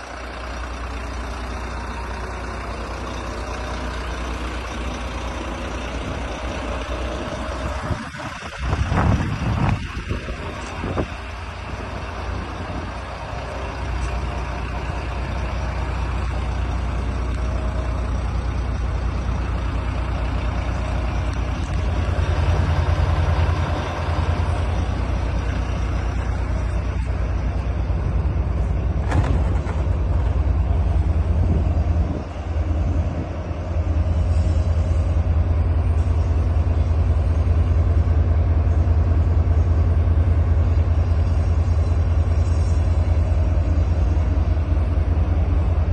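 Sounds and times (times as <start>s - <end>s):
truck diesel engine running: 0.0s - 45.9s.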